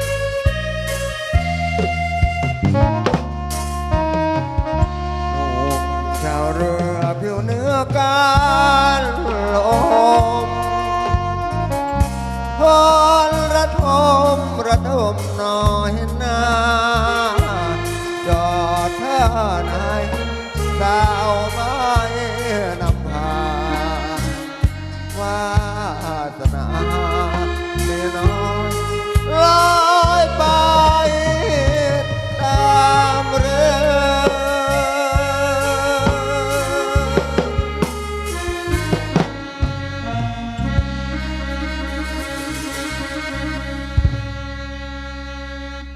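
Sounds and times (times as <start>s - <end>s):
folk band playing: 0.0s - 45.9s
steady low bass: 0.0s - 45.9s
wavering melody with vibrato: 0.0s - 45.9s
sharp percussion strikes: 9.2s - 11.4s.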